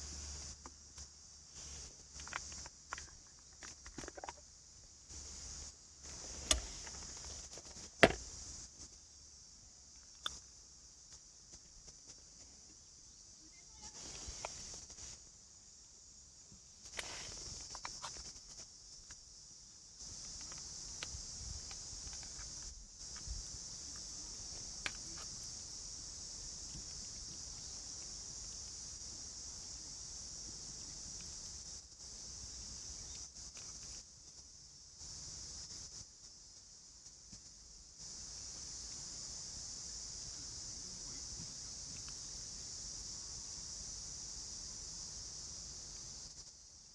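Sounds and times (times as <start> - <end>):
insect chorus trilling: 0.0 - 46.9
steady high hiss: 0.0 - 46.9
sharp clicks and knocks: 6.4 - 8.3.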